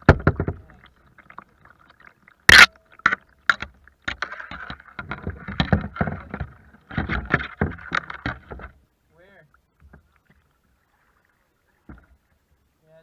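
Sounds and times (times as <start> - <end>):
knocks on kayak: 0.0 - 0.7, 5.0 - 8.7
water sloshing and splashing: 0.0 - 12.6.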